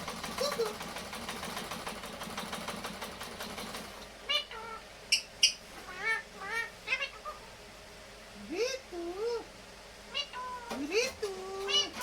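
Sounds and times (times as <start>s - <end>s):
parrot calling: 4.2s - 7.6s, 10.1s - 11.0s, 11.6s - 12.0s.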